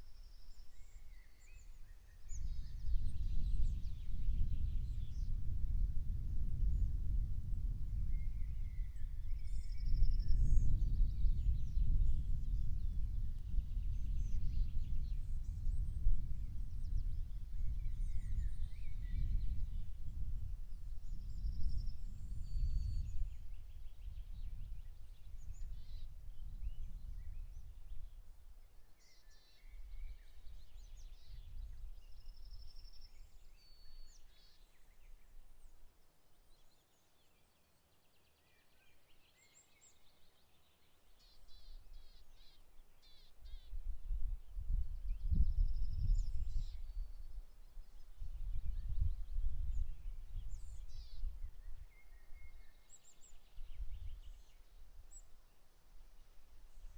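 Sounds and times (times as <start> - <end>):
wind rumbling on microphone: 0.0 - 34.2, 43.4 - 55.3
songbirds singing: 0.0 - 55.8.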